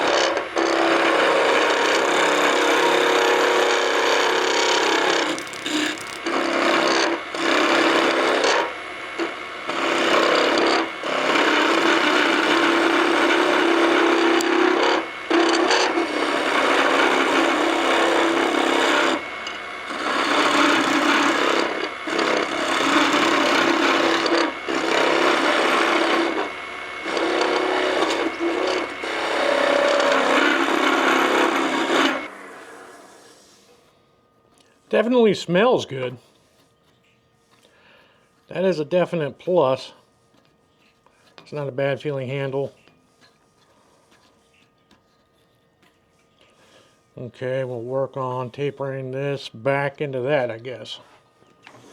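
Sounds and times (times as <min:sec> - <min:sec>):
chisel scraping spinning wood: 0:00.0 - 0:33.6
lathe humming: 0:00.0 - 0:33.8.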